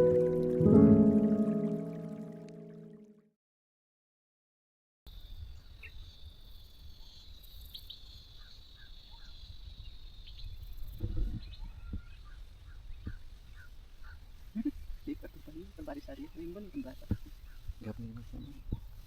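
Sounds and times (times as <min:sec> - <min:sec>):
wind rumble on microphone: 0:09.4 - 0:15.8, 0:17.0 - 0:19.0.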